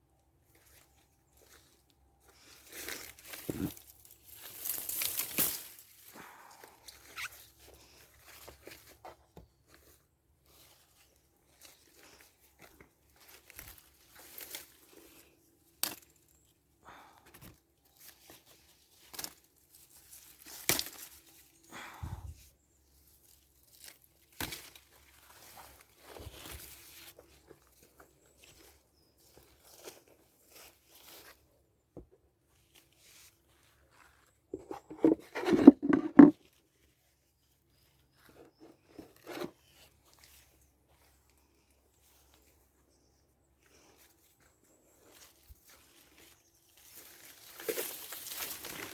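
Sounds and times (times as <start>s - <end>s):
leaves and twigs rustling: 0.5s - 6.2s, 9.7s - 16.5s, 17.8s - 21.6s, 23.0s - 31.5s, 43.7s - 48.9s
twig snapping: 20.5s - 21.1s
rustling handling sounds: 32.6s - 42.5s
rubs and knocks: 34.5s - 36.4s.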